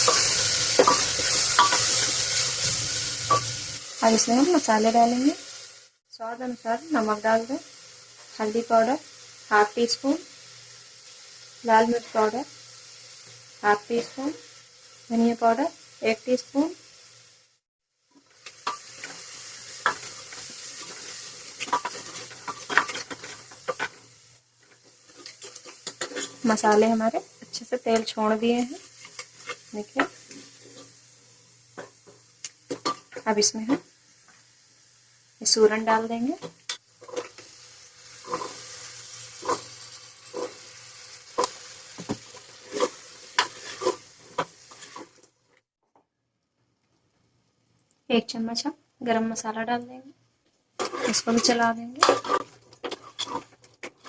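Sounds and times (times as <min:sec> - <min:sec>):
paste sizzling in hot oil: 0:00.0 - 0:45.4, 0:50.8 - 0:54.0
spoon knocking and scraping metal: 0:21.6 - 0:24.0, 0:50.8 - 0:54.0.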